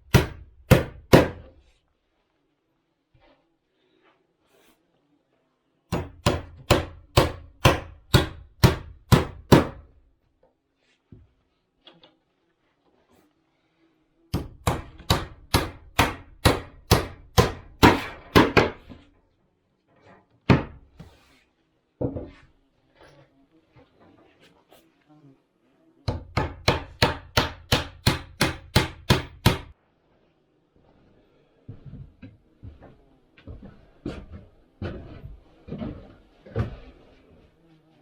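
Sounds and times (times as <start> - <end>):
hammer striking wood: 0.0 - 1.6, 5.9 - 9.9, 14.4 - 19.0, 20.5 - 21.0, 26.1 - 29.7.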